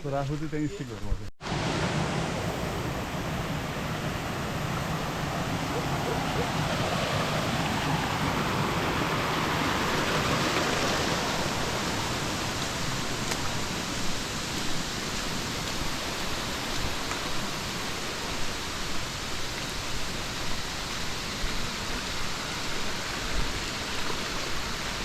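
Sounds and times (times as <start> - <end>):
rushing water: 1.4 - 25.0.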